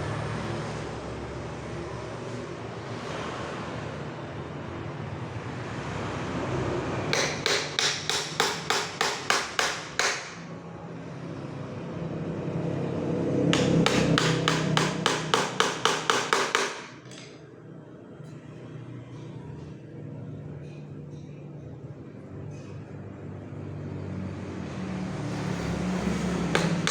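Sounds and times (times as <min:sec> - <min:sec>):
steady background noise: 0:00.0 - 0:26.9
hammer driving nails into wood: 0:07.2 - 0:10.5, 0:13.6 - 0:17.4, 0:26.5 - 0:26.9.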